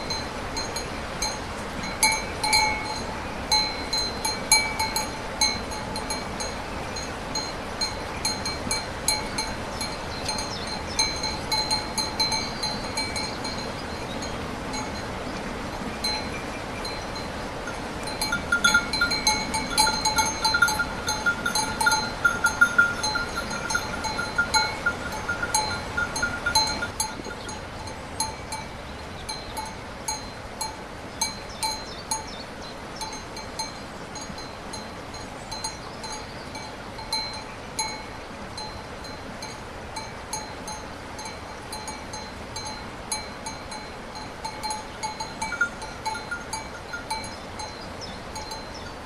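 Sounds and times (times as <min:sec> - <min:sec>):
rain hiss: 0:00.0 - 0:49.0
small metal bell clanking: 0:00.6 - 0:06.5, 0:18.1 - 0:27.5, 0:41.2 - 0:47.8.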